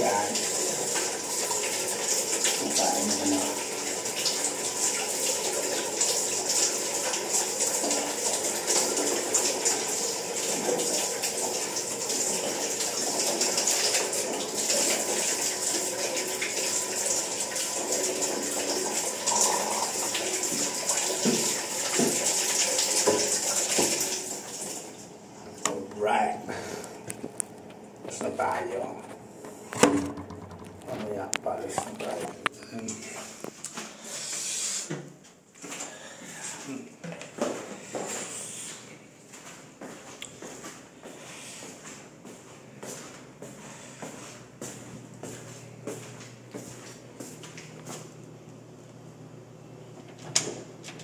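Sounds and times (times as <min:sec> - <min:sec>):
water running: 0:00.0 - 0:27.5, 0:28.1 - 0:34.9.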